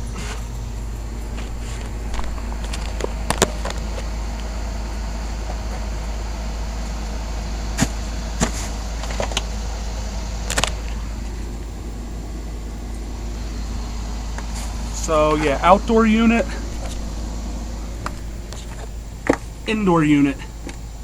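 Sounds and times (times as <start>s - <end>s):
low mechanical hum: 0.0s - 21.0s
sharp clicks and knocks: 1.3s - 4.5s.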